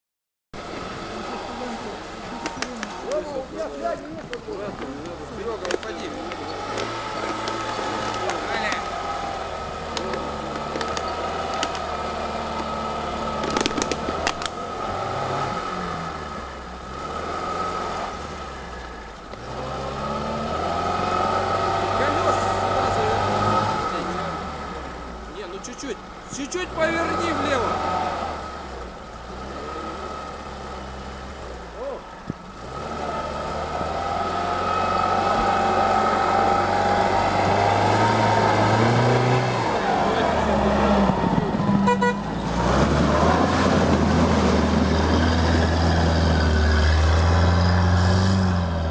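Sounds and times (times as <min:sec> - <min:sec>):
off-road vehicle engine revving: 0:00.6 - 0:48.9
sharp clicks and knocks: 0:09.9 - 0:11.9, 0:13.4 - 0:14.6.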